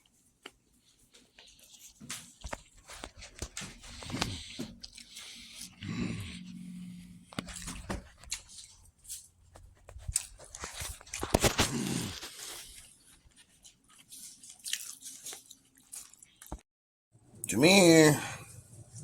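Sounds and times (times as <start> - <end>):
brief low vocal sound: 5.8 - 7.2
crunching and crackling: 7.3 - 16.6.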